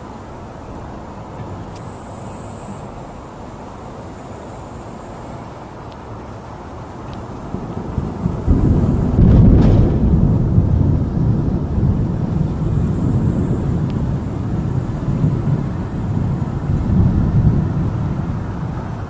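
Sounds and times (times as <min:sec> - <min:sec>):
thunder clap and rumble: 0:07.4 - 0:19.0.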